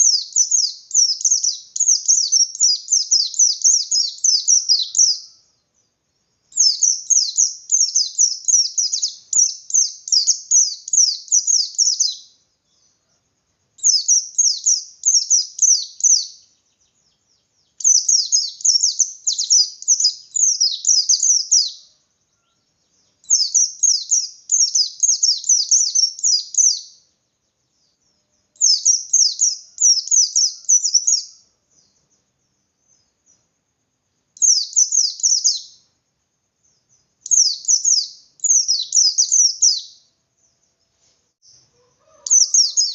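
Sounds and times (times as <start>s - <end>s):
bird high-pitched twittering: 0.0s - 13.2s, 13.8s - 33.5s, 34.4s - 36.0s, 36.6s - 42.9s.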